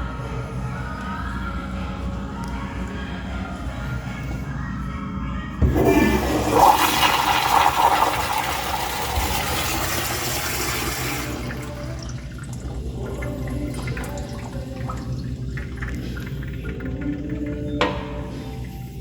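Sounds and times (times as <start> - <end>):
toilet flushing: 5.6 - 19.0.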